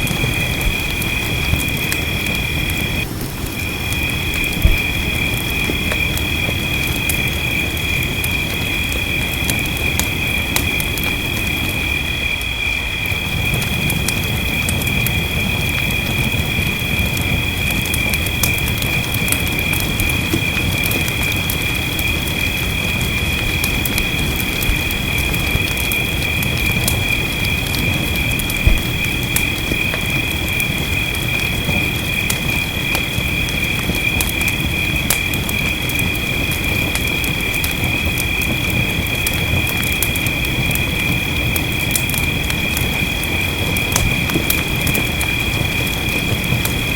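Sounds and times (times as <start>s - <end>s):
fire crackling and popping: 0.0s - 46.9s
fire rumbling: 0.0s - 46.9s
high insect-like chorus: 0.0s - 46.9s
fire pop: 4.4s - 6.1s, 28.4s - 30.0s.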